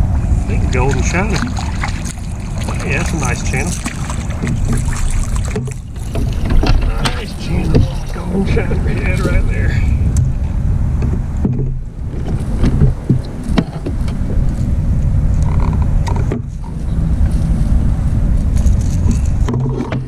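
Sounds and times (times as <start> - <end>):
wind buffeting microphone: 0.0 - 20.0
knocks and clicks of handling gear: 5.5 - 8.6, 11.0 - 14.2, 18.7 - 20.0.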